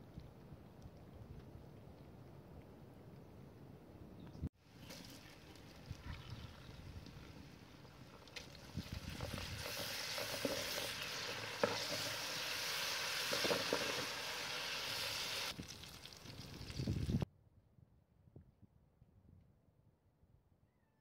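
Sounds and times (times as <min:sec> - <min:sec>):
onions sizzling in hot oil: 0:06.4 - 0:17.2
wooden spatula scraping a pan: 0:09.2 - 0:12.3.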